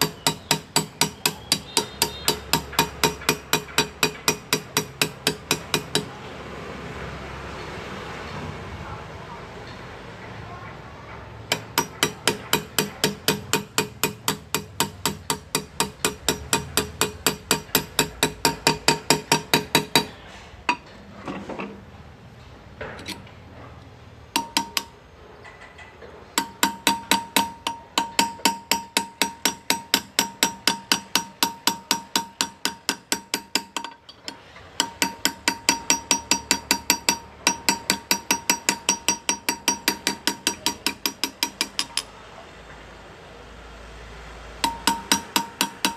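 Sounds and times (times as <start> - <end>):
hammer tapping chisel on metal: 0.0 - 6.2, 11.5 - 21.7, 22.8 - 23.3, 24.3 - 42.1, 44.6 - 45.9.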